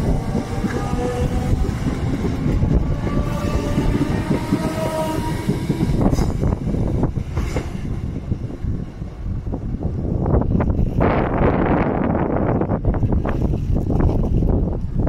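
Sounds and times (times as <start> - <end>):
train motor whine: 0.0 - 8.2
train wheels clacking over rails: 0.0 - 8.8
electric train rumbling: 0.0 - 15.0.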